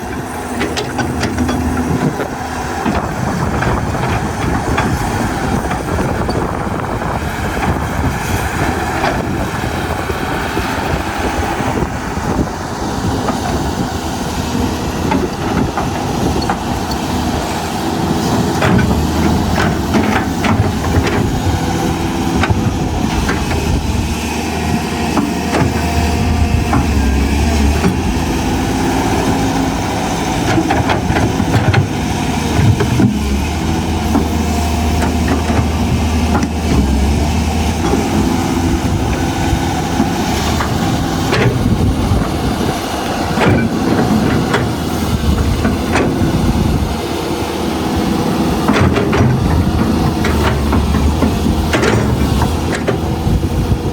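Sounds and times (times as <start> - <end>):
excavator diesel engine running: 0.0 - 53.9
machine clanking and knocking: 0.0 - 53.9.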